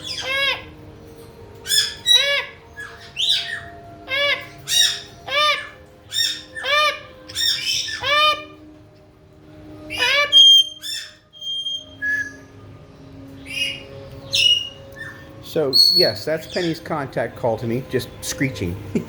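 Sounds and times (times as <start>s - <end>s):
parrot screeching: 0.0s - 0.9s, 1.5s - 8.7s, 9.8s - 12.6s, 13.4s - 16.8s.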